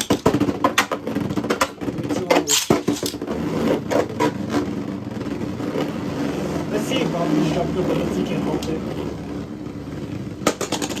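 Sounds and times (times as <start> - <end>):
spinning tops clattering and colliding: 0.0 - 3.2, 10.4 - 11.0.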